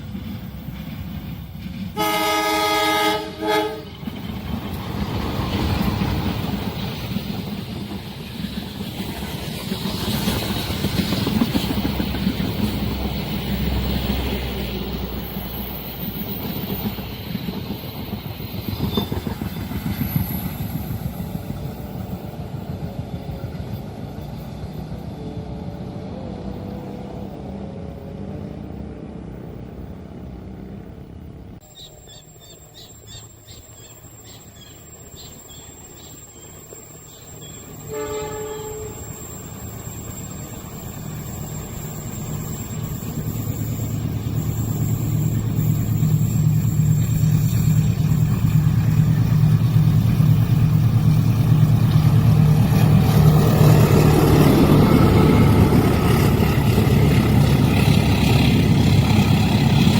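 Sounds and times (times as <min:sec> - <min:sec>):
train passing on rails: 0:00.0 - 0:59.9
train horn chord: 0:02.0 - 0:03.9, 0:37.8 - 0:39.3.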